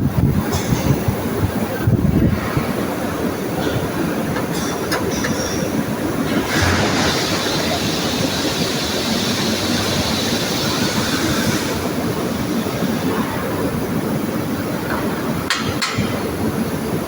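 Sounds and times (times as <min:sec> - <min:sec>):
high hiss: 0:04.5 - 0:13.0.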